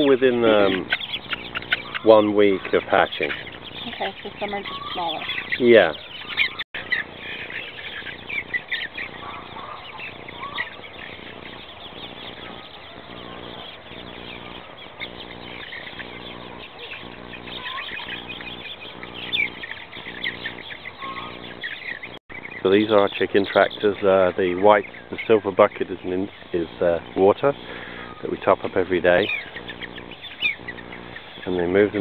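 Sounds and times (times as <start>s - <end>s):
chicks peeping: 0.0s - 32.0s
low pulsing hum: 6.5s - 32.0s.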